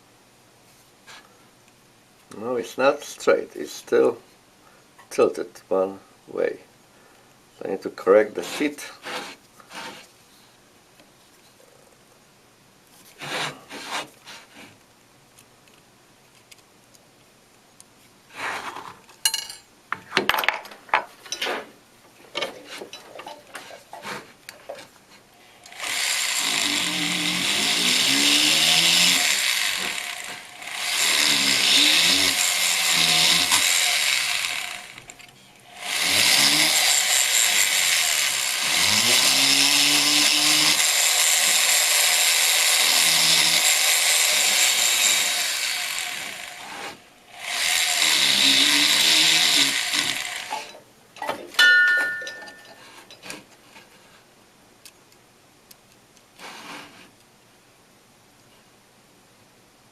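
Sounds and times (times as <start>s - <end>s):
rotary handpiece cutting metal: 25.7s - 50.8s.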